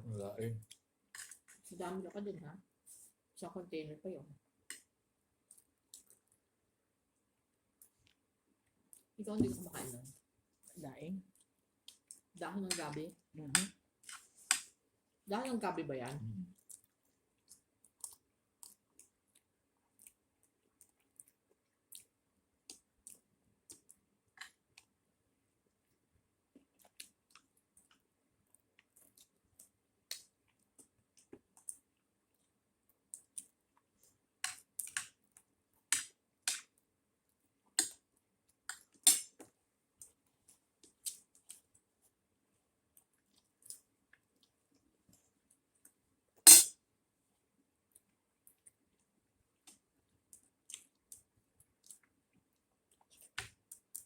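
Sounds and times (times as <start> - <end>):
chewing clicks and smacks: 49.6 - 52.2.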